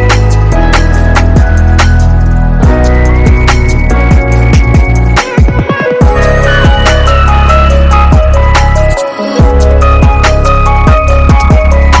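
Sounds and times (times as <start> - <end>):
deep kick drum: 0.0 - 1.8, 2.6 - 7.0, 8.1 - 8.5, 9.4 - 10.3, 10.9 - 11.8
heavy steady bass: 0.0 - 12.0
synth melody: 0.0 - 12.0.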